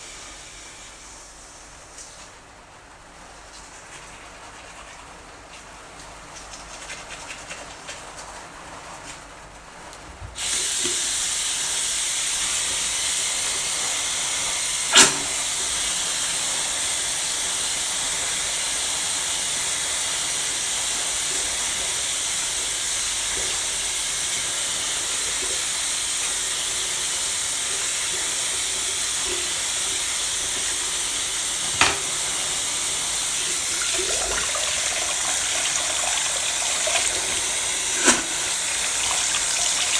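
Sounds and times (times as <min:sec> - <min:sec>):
running water rushing: 0:21.6 - 0:39.9.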